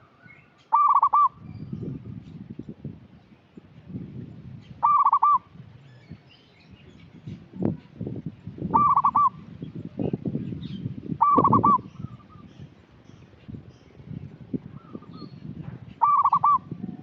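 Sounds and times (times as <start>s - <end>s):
dove calling: 0.0s - 2.1s, 4.6s - 5.6s, 8.6s - 12.7s, 14.7s - 17.0s.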